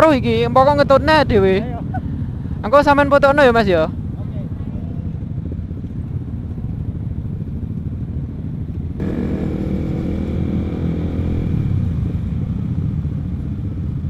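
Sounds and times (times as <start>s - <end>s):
motorcycle running: 0.0s - 14.0s
wind rumble on microphone: 0.0s - 14.0s
steady engine note: 9.0s - 13.3s.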